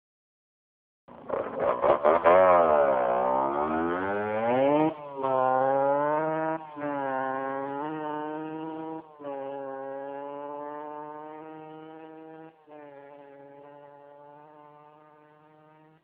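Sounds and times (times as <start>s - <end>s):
engine sputtering with pops: 1.1s - 2.8s
motorbike engine revving: 1.1s - 16.0s.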